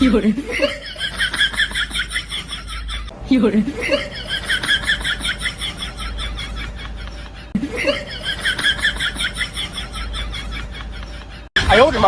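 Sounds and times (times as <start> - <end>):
high-pitched rapid laughter: 3.8 - 11.5.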